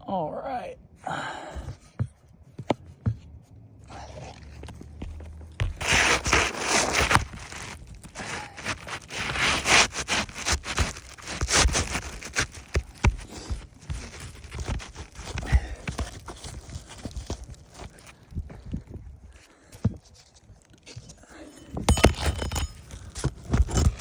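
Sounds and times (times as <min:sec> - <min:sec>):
shingle rustling: 0:01.3 - 0:24.0
shingle being cut: 0:04.0 - 0:18.1.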